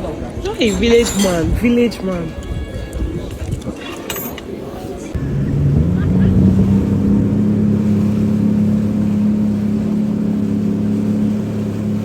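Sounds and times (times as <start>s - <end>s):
motorboat engine running: 5.2s - 12.0s.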